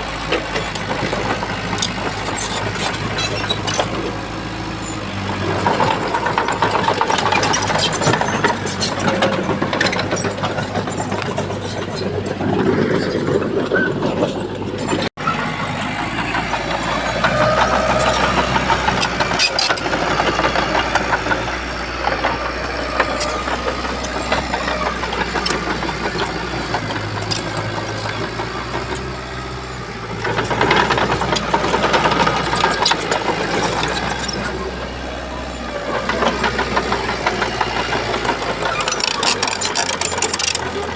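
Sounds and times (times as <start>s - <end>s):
bulldozer diesel engine running: 0.0s - 40.9s
metallic clatter: 36.4s - 40.9s.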